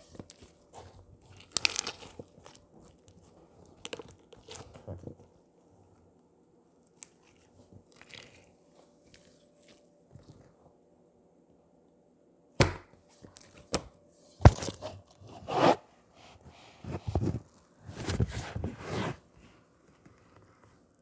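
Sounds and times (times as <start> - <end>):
slime squishing: 0.0 - 6.2, 6.8 - 10.6.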